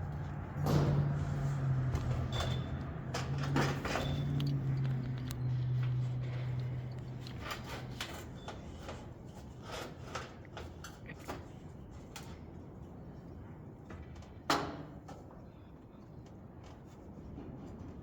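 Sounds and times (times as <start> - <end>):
light clicks and knocks of parts: 0.0 - 12.9.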